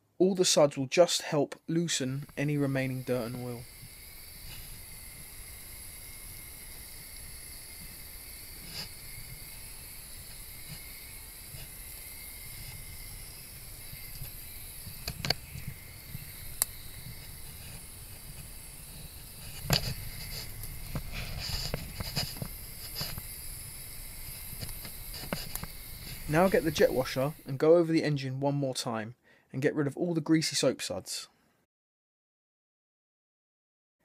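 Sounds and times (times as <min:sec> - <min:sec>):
faint steady hiss: 0:00.1 - 0:31.5
scattered clicks and light knocks: 0:24.3 - 0:26.3.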